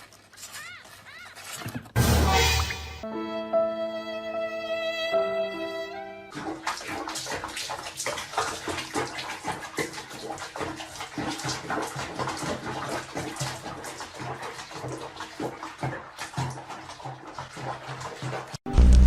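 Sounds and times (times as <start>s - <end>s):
water splashing in a tub: 6.3s - 18.6s.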